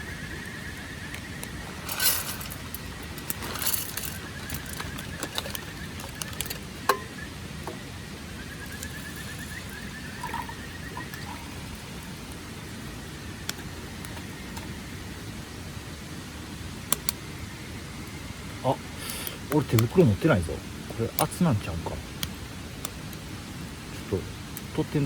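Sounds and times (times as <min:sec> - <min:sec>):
gear rustling: 0:00.8 - 0:07.1
light metallic clinks: 0:01.1 - 0:07.8.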